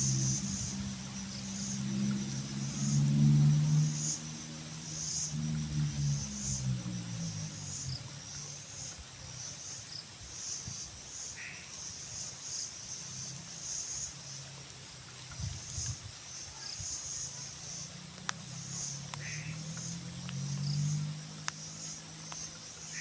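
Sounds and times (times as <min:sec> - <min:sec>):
low engine hum: 0:00.0 - 0:09.6, 0:17.4 - 0:23.0
insects chirping: 0:00.0 - 0:23.0.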